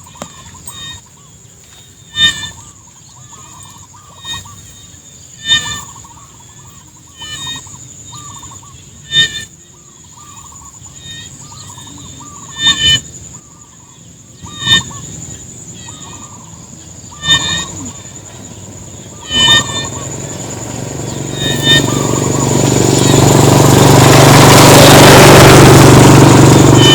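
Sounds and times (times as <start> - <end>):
high insect drone: 0.0 - 26.9
loud harsh animal call: 2.1 - 4.8, 5.4 - 13.2, 14.4 - 26.9
short repeated animal calls: 2.1 - 4.8, 5.4 - 9.5, 10.3 - 13.1, 14.5 - 15.1, 15.7 - 25.2, 26.4 - 26.9.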